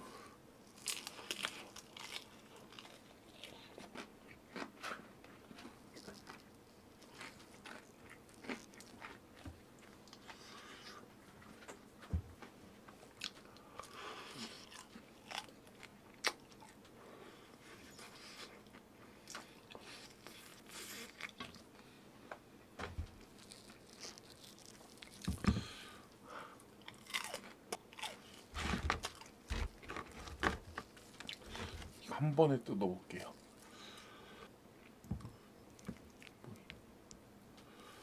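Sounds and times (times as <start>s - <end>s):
person chewing crunchy food: 0.7s - 11.0s, 13.1s - 16.8s, 17.6s - 21.9s, 23.2s - 32.0s, 34.8s - 36.7s.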